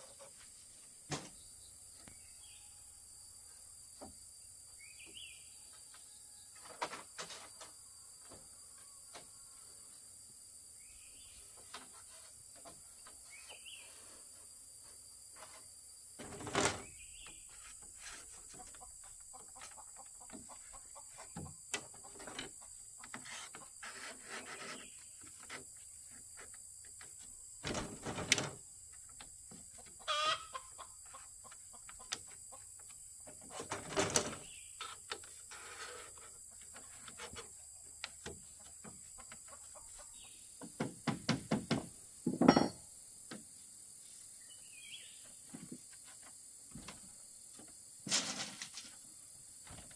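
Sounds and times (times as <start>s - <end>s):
chickens clucking: 17.4s - 23.8s, 29.6s - 33.8s, 38.4s - 40.5s
sharp knocks: 40.7s - 42.8s.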